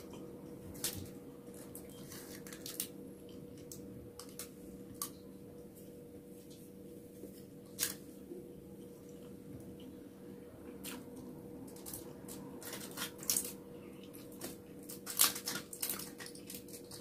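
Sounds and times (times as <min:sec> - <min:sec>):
steady low hum: 0:00.0 - 0:17.0
fingers rustling in rice and foil: 0:00.8 - 0:05.2, 0:11.7 - 0:17.0.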